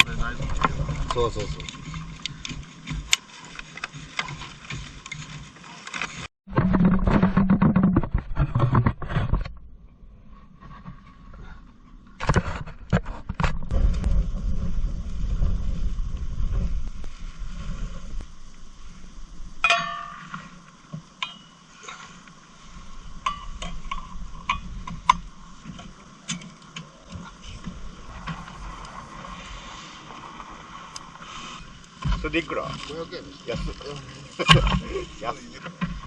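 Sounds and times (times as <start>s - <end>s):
rough low rumbling and knocking: 0.0s - 3.1s, 6.5s - 19.7s.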